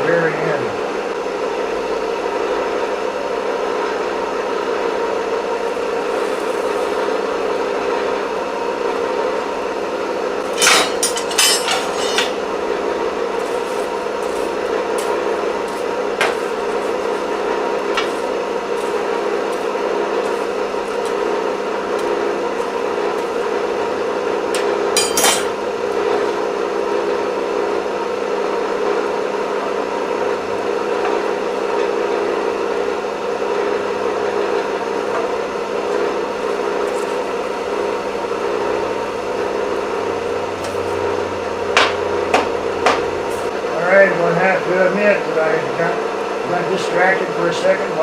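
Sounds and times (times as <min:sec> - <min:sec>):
forge blower humming: 0:00.0 - 0:48.0.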